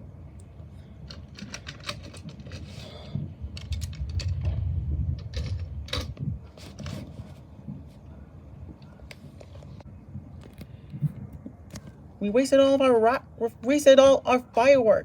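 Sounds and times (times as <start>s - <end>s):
low rumble: 2.1s - 6.6s.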